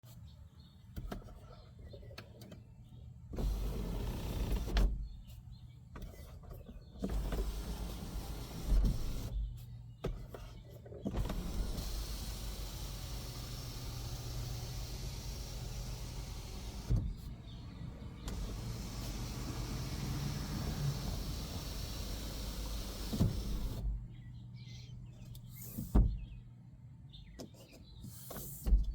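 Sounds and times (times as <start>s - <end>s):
electric sunroof motor running: 3.4s - 4.9s, 7.0s - 9.3s, 11.1s - 24.0s.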